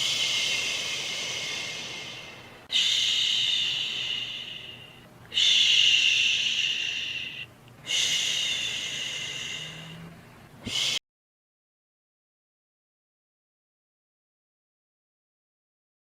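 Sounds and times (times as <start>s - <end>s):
person shushing: 0.0s - 11.0s.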